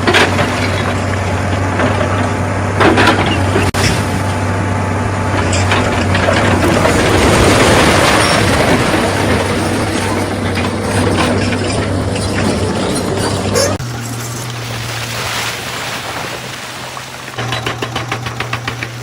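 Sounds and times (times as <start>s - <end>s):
excavator diesel engine running: 0.0s - 19.0s
rock scraping and clattering: 5.4s - 16.5s.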